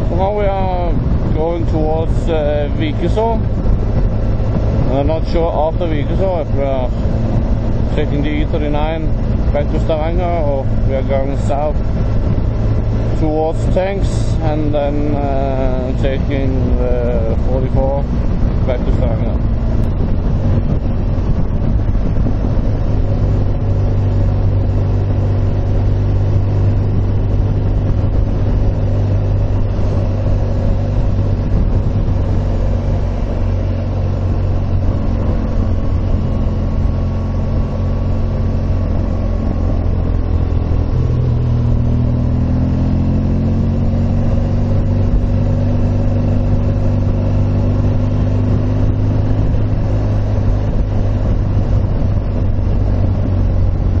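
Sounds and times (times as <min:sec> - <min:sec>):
motorcycle engine running: 0:00.0 - 0:54.0
wind noise: 0:00.0 - 0:54.0.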